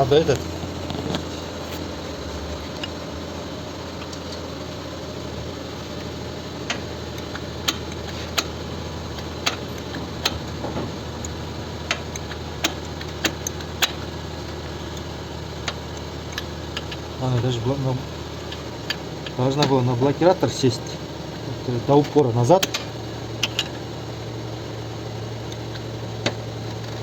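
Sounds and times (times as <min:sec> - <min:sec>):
steady low hum: 0:00.0 - 0:27.0
metallic clicks and taps: 0:22.6 - 0:23.8.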